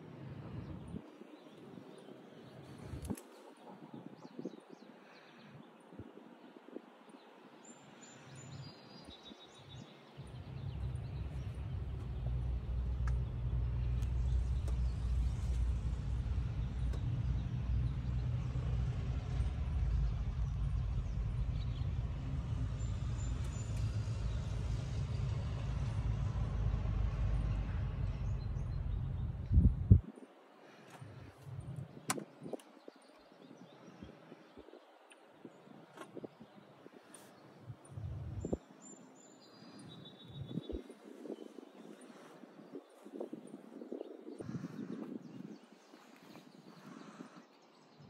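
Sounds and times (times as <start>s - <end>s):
car engine idling: 10.4s - 24.5s.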